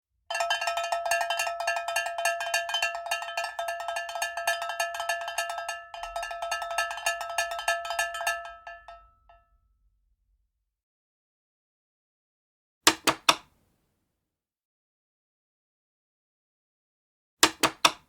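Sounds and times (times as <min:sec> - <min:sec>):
ringing metal percussion strikes: 0:00.3 - 0:09.4.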